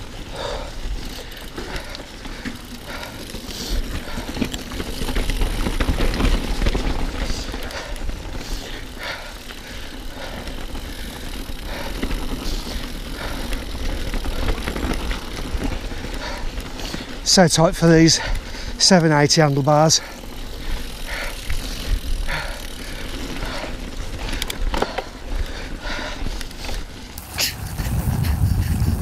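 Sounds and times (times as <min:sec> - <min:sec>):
bike rattling and knocking: 0:00.0 - 0:29.0
bike tyres rolling over mud: 0:00.0 - 0:29.0
wind buffeting microphone: 0:27.2 - 0:29.0.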